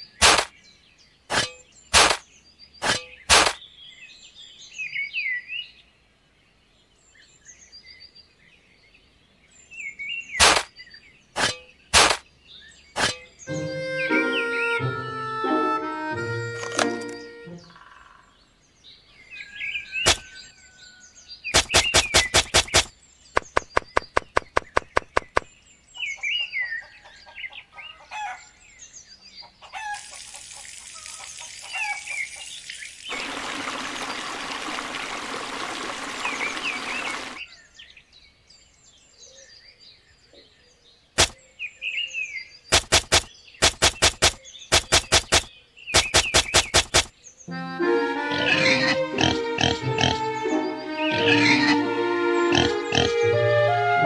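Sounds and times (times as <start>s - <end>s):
small birds chirping: 0.0s - 15.0s, 16.8s - 53.6s
rapid clicking: 21.6s - 25.5s, 42.7s - 47.1s
water pouring into plastic basin: 33.1s - 37.4s.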